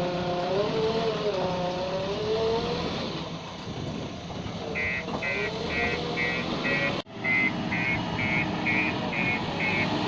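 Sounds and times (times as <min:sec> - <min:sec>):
diesel engine running: 0:03.1 - 0:10.0
reversing alarm beeping: 0:04.8 - 0:10.0.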